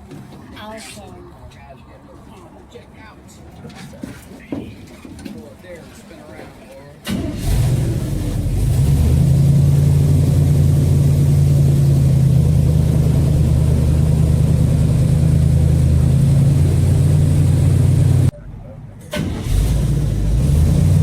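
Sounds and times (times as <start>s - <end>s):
boat engine revving: 7.0s - 18.3s, 19.1s - 21.0s.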